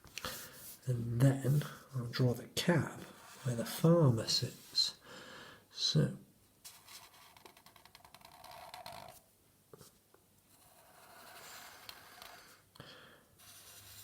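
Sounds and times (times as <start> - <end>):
pen scratching on paper: 6.7 - 9.2, 10.5 - 12.6, 13.4 - 14.0.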